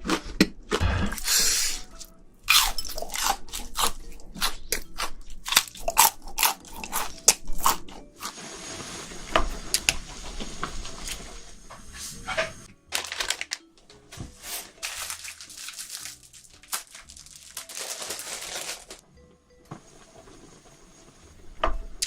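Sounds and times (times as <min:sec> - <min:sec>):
person chewing crunchy shrimp: 0:00.0 - 0:08.3.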